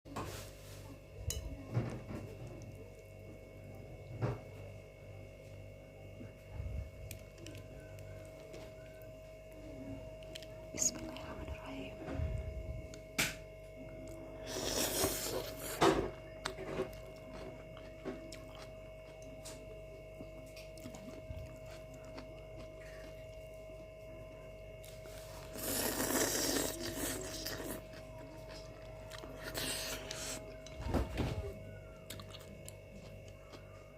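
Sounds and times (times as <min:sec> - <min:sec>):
faint steady hum: 0:00.1 - 0:33.9
chewing and small clicks: 0:07.0 - 0:11.7, 0:16.4 - 0:23.7, 0:31.8 - 0:33.9.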